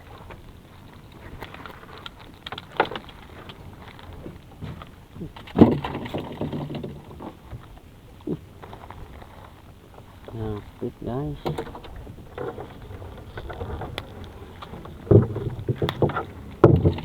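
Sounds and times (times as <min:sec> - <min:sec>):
knocks and clatter: 0:02.4 - 0:07.6, 0:11.4 - 0:17.0.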